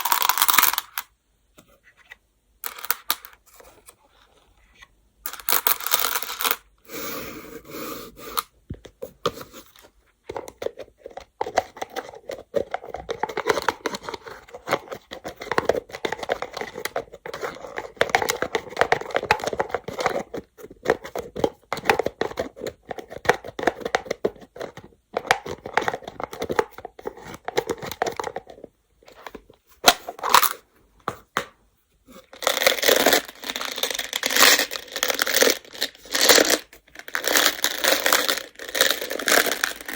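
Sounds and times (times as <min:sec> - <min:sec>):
game stones clattering: 0:32.4 - 0:39.9.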